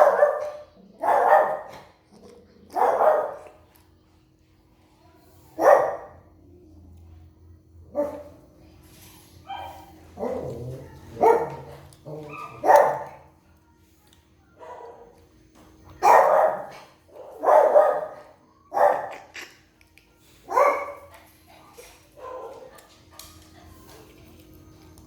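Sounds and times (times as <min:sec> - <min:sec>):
dog barking: 0:00.0 - 0:01.9, 0:02.8 - 0:03.5, 0:05.6 - 0:06.2, 0:11.2 - 0:13.2, 0:16.0 - 0:19.3, 0:20.5 - 0:21.1, 0:22.2 - 0:22.8.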